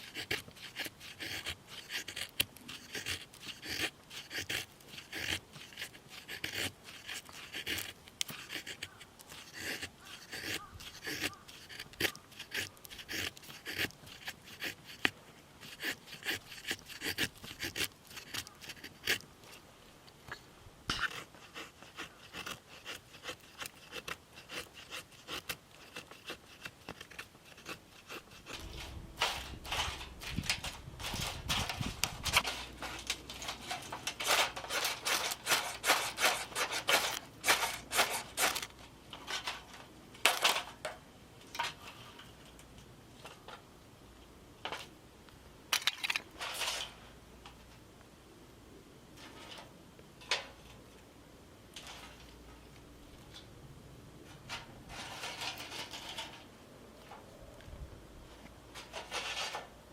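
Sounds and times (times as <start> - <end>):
objects scraping and knocking: 24.8 - 43.6, 45.7 - 47.8, 49.1 - 51.0, 51.7 - 53.5, 54.2 - 59.9.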